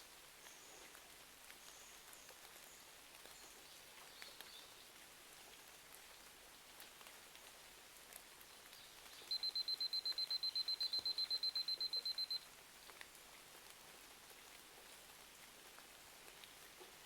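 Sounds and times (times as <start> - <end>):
rain hiss: 0.0 - 17.0
digital timer alarm beeping: 9.3 - 12.4.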